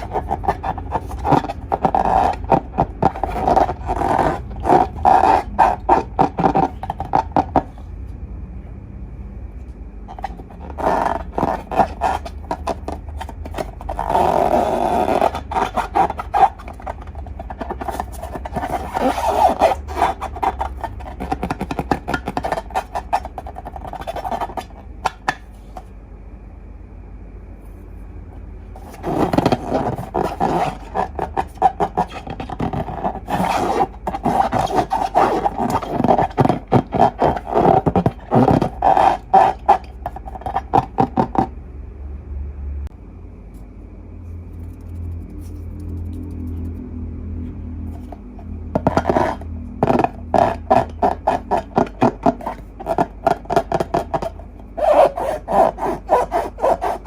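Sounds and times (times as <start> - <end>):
slime squelching by hand: 28.8 - 41.4.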